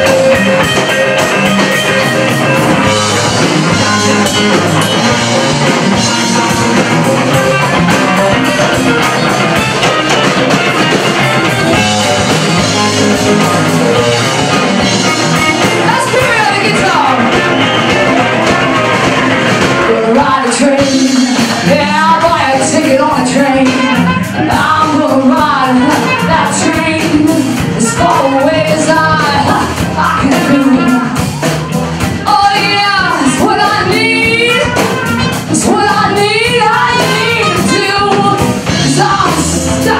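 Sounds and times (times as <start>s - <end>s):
bending lead melody: 0.0s - 39.9s
blues band playing rock: 0.0s - 39.9s.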